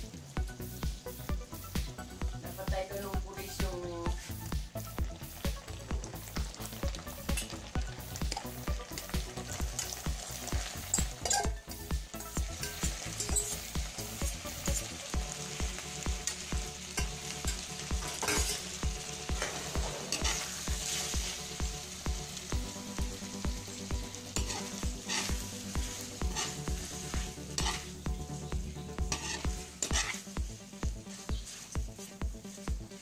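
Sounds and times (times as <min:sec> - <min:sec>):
background music with beat: 0:00.0 - 0:33.0
spaghetti sizzling in hot oil: 0:00.0 - 0:33.0
scraping in a pan: 0:12.2 - 0:14.9, 0:17.0 - 0:18.7, 0:19.3 - 0:21.4, 0:24.3 - 0:28.0, 0:29.0 - 0:30.4, 0:31.0 - 0:32.2.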